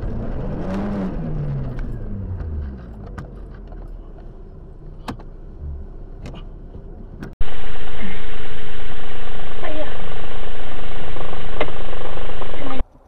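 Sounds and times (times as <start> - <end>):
car engine slowing down: 0.0 - 7.3
loud steady vehicle noise: 0.0 - 7.6.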